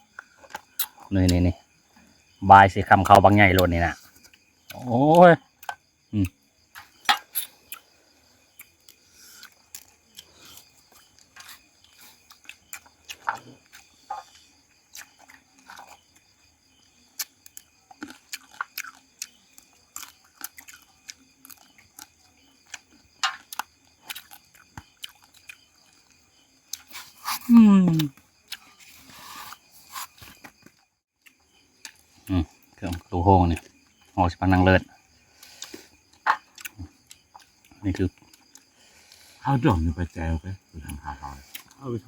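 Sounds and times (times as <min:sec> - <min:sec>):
person chewing crunchy food: 0:00.1 - 0:01.4, 0:05.5 - 0:34.2, 0:35.0 - 0:39.4, 0:40.8 - 0:41.8
mouth clicks: 0:26.7 - 0:28.6.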